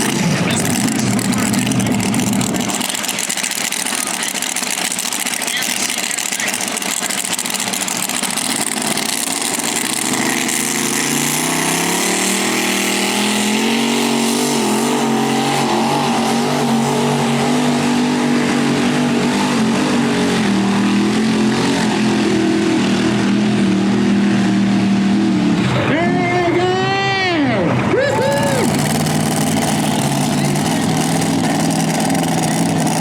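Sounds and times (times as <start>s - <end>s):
tractor engine at high revs: 0.0s - 26.7s, 27.4s - 33.0s.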